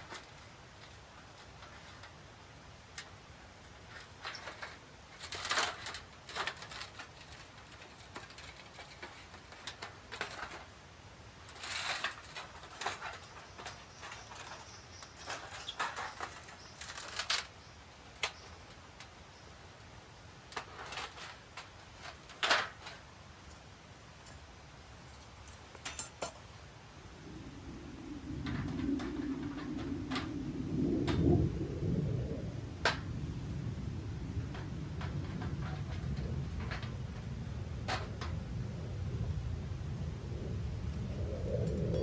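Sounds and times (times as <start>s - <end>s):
gear rustling and clicking: 0.0s - 10.8s, 11.4s - 26.6s.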